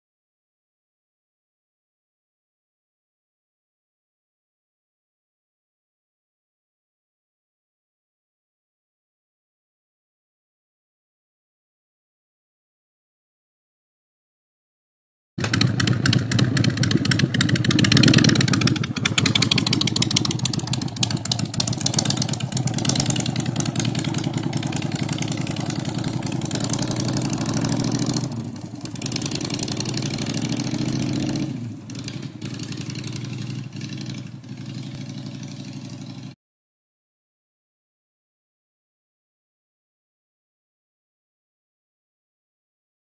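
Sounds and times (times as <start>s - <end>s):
motorcycle engine revving: 15.4s - 36.4s.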